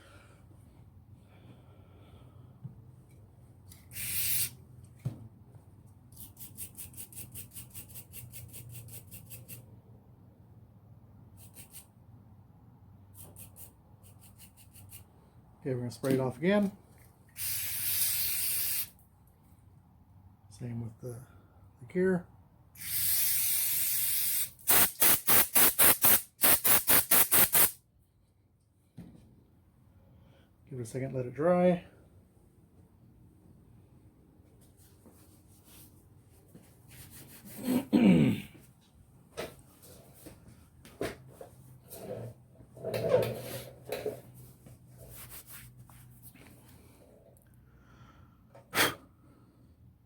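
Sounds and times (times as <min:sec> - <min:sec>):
aerosol spray hissing: 0:03.9 - 0:04.6, 0:17.4 - 0:18.9, 0:22.8 - 0:27.8.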